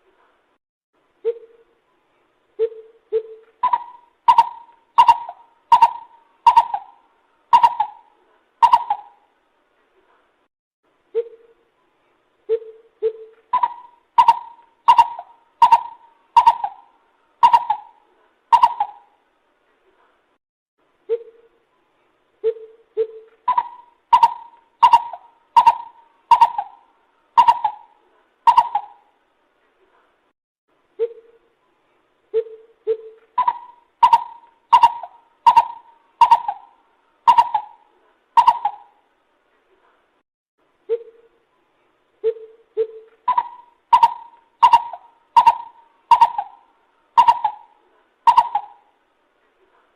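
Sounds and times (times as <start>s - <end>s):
bird hollow calls: 2.6s - 9.2s, 12.5s - 19.1s, 22.4s - 29.1s, 32.4s - 39.0s, 42.2s - 48.9s.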